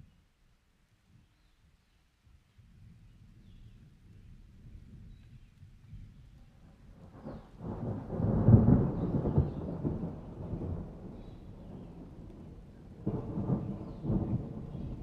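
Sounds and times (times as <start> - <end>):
thunder rumbling: 7.0 - 15.0.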